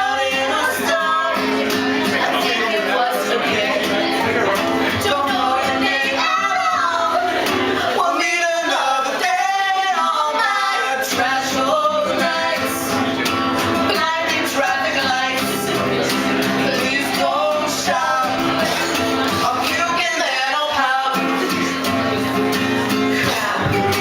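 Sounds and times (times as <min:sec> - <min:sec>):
male and female voices singing: 0:00.0 - 0:24.0
instrumental accompaniment: 0:21.3 - 0:24.0.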